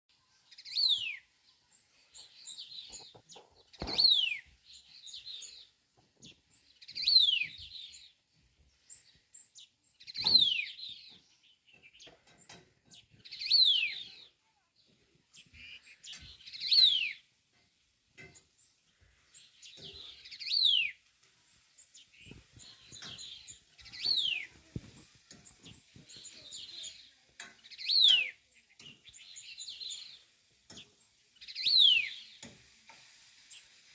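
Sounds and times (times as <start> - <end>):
soft bird twittering: 18.3 - 32.5.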